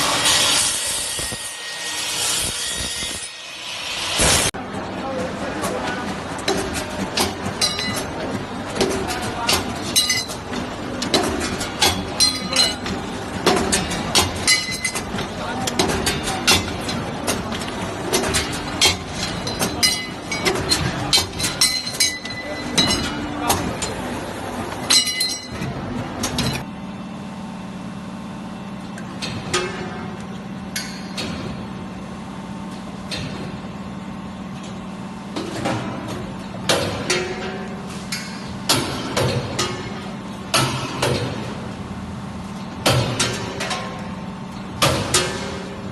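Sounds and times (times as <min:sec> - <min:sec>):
workshop hum: 0:00.0 - 0:45.9
cutting machine metal clanks: 0:05.6 - 0:24.1, 0:42.8 - 0:45.8.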